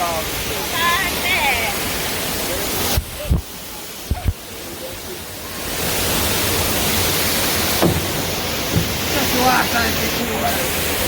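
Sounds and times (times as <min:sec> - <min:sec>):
waterfall and river rushing: 0:00.0 - 0:11.0
low thumps: 0:07.1 - 0:09.4.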